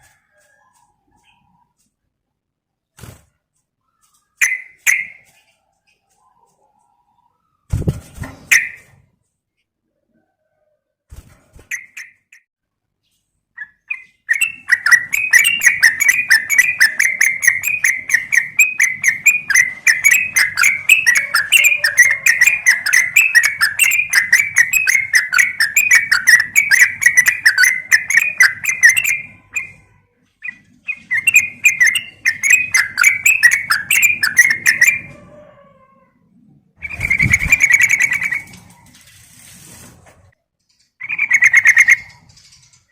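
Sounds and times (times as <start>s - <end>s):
bird chattering call: 14.3s - 29.8s, 30.4s - 35.1s.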